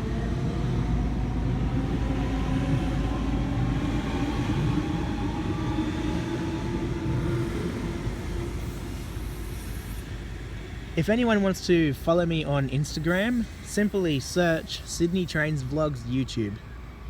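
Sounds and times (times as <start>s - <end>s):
electric train motor whine: 0.0s - 11.0s
train wheels rumbling on track: 0.0s - 17.0s.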